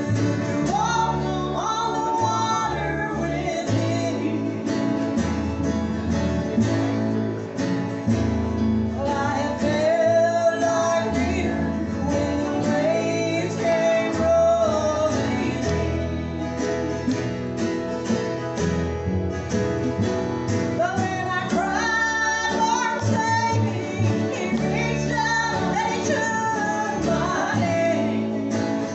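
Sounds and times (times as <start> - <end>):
group singing: 0.0 - 5.1, 8.9 - 16.9, 20.8 - 28.9
bass line: 0.0 - 28.9
strummed acoustic guitar: 0.0 - 28.9.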